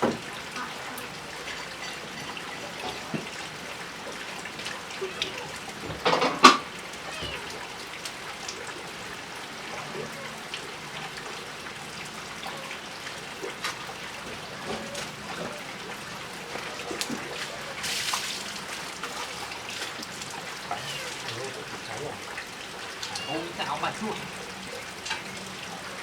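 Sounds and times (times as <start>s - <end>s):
water trickling and dripping: 0.0s - 26.0s.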